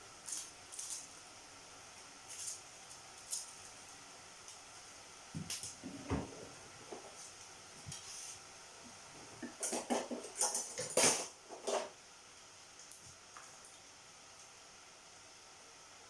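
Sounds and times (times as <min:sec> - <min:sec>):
utensils clinking on dishes: 0:09.4 - 0:12.0.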